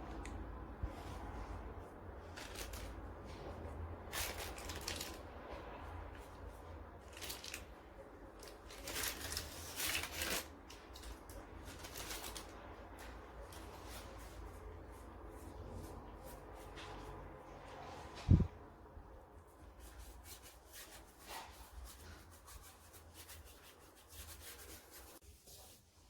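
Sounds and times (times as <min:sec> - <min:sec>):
rustling: 0:02.2 - 0:05.3, 0:07.0 - 0:17.1.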